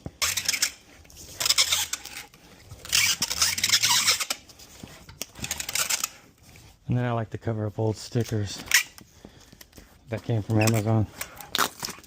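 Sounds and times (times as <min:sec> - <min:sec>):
packing tape ripping off roll: 0:00.0 - 0:06.3, 0:10.6 - 0:12.0.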